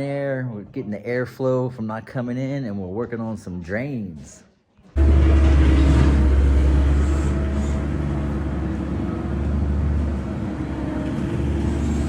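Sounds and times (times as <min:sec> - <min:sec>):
low engine-like drone: 0:05.0 - 0:12.0.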